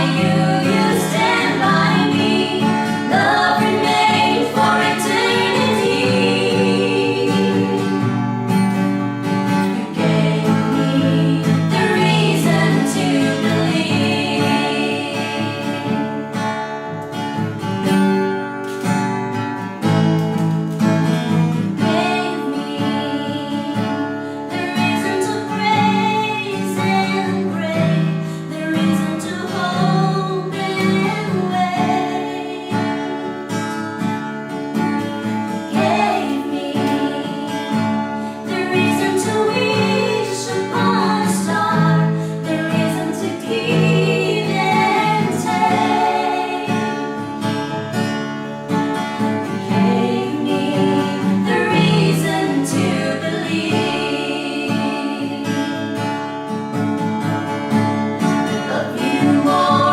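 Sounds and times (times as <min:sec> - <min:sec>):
person singing: 0:00.0 - 0:08.0, 0:09.7 - 0:16.0, 0:24.5 - 0:33.1, 0:38.4 - 0:47.0, 0:49.6 - 0:55.7, 0:58.6 - 0:59.9
strummed acoustic guitar: 0:00.0 - 0:59.9.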